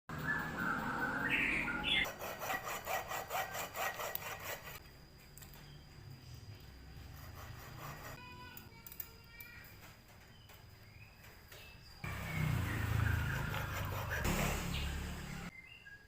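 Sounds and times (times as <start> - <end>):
hand tool scraping: 2.0 - 4.8, 7.0 - 8.3, 13.0 - 14.8.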